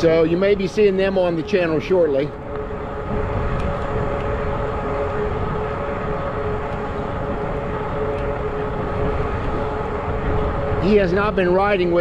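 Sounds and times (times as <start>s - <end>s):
electric bike drive and tyres humming: 0.0s - 12.0s
wind rumble on microphone: 0.0s - 12.0s.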